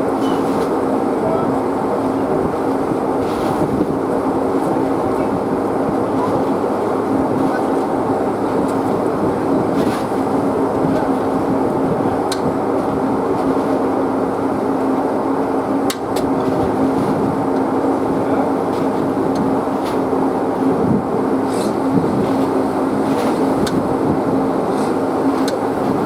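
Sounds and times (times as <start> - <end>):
engine low drone: 0.0 - 26.0.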